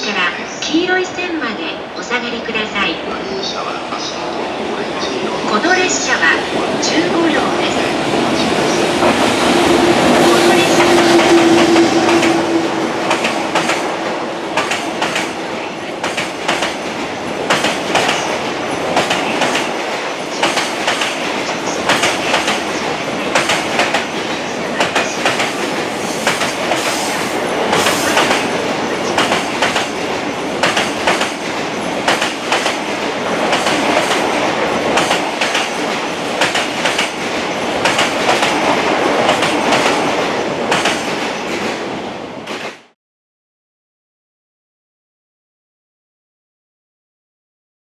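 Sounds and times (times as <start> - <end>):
train wheels clacking on rails: 7.3 - 43.0.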